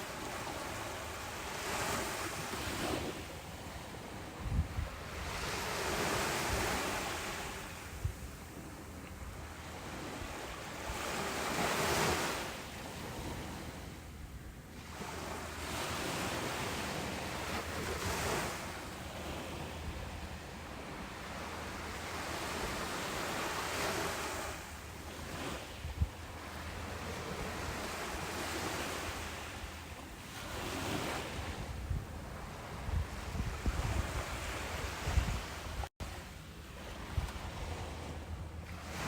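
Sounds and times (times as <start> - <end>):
ocean surf washing onto beach: 0.0 - 13.8
wind buffeting microphone: 1.7 - 11.7, 25.3 - 29.9, 30.5 - 35.9.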